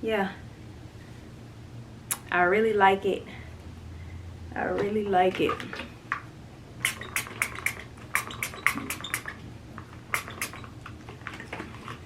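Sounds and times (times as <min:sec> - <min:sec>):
spray bottle sputtering spritzes: 0:06.8 - 0:09.4, 0:10.1 - 0:10.7.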